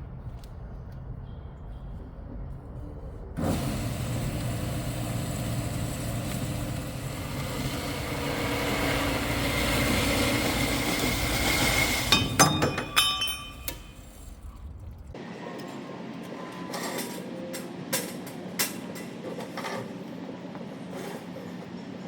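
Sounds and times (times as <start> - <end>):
metal-cutting saw running: 3.4 - 12.5
steel pieces clanking together: 11.8 - 14.3.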